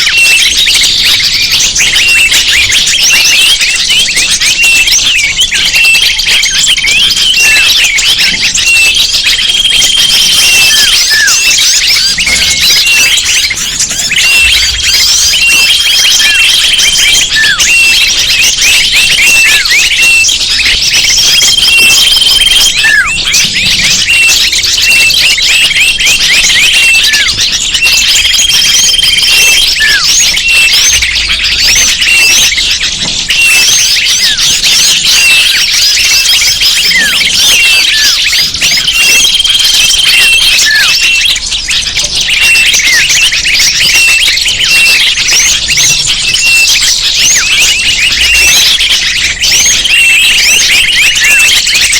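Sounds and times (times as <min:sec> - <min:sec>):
held bird whistle: 0:00.0 - 0:51.9
small birds chirping chorus: 0:00.0 - 0:51.9.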